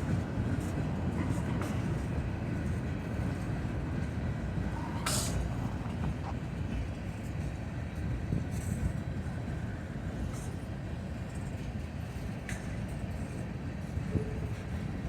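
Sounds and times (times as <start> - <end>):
freight train rumbling on rails: 0.0 - 15.0.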